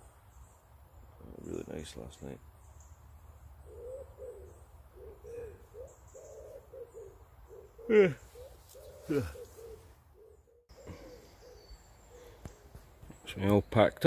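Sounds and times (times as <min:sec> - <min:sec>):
birds cooing: 0:03.5 - 0:13.2
wavering descending bird calls: 0:03.6 - 0:12.8.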